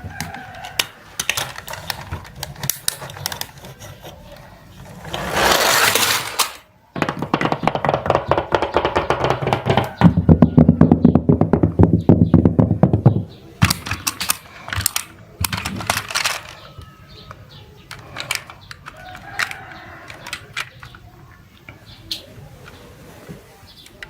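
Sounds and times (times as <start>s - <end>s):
toy cars rattling down slide: 0.1s - 10.0s, 13.6s - 21.1s
toys clattering together: 0.1s - 10.7s, 12.5s - 21.2s.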